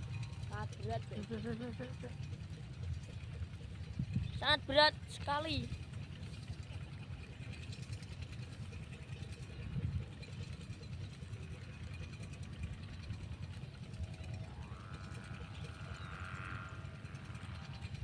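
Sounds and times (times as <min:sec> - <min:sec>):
wind buffeting microphone: 0:02.2 - 0:18.0
faint rising whine: 0:11.2 - 0:18.0.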